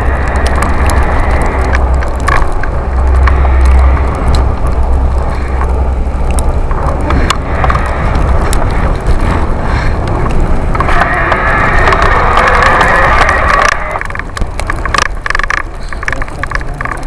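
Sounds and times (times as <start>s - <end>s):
sharp clicks and rattles: 0.0s - 17.0s
wind rumble on microphone: 0.0s - 17.0s.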